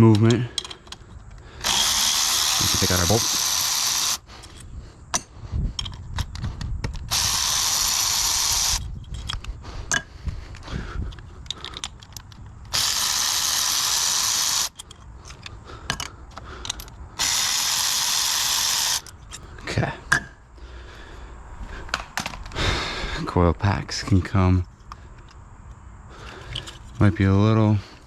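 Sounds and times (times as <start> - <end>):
metal tools clicking and knocking: 0.0 - 7.1, 11.1 - 12.8, 14.5 - 17.0
power tool backing out a bolt: 1.6 - 4.2, 7.1 - 8.8, 12.7 - 14.8, 17.2 - 19.1.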